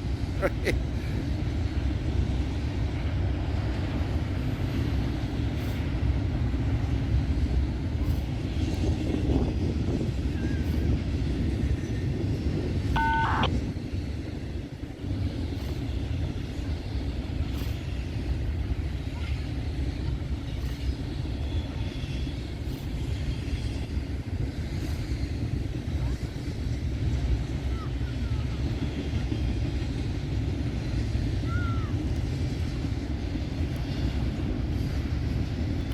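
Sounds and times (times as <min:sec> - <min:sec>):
freight train rumbling past: 0:00.0 - 0:35.9
two-tone beep: 0:13.0 - 0:13.5.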